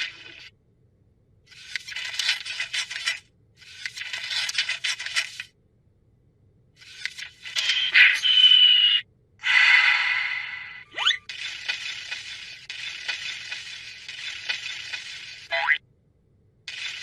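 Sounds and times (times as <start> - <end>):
cartoon scraping and rattling: 1.5 - 5.5, 6.8 - 8.9, 9.5 - 15.6.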